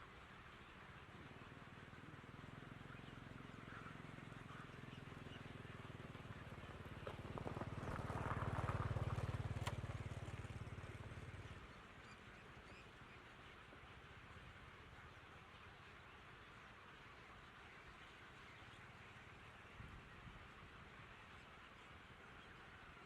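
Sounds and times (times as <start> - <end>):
faint outdoor background: 0.0 - 23.0
vehicle engine passing: 6.0 - 11.7.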